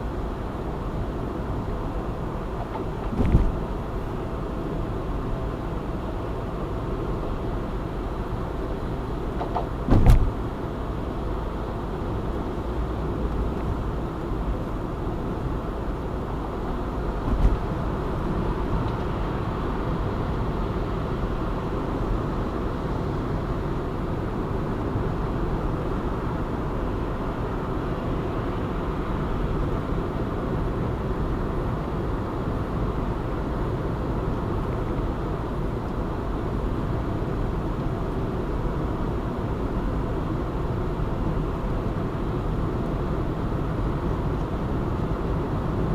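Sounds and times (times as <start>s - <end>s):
car road and engine noise: 0.0s - 45.9s
brief knock: 2.7s - 3.6s, 9.4s - 10.4s.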